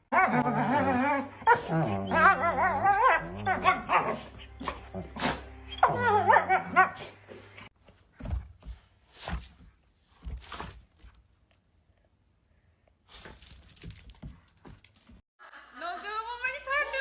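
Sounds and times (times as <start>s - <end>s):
dog whining and yowling: 0.1s - 7.0s.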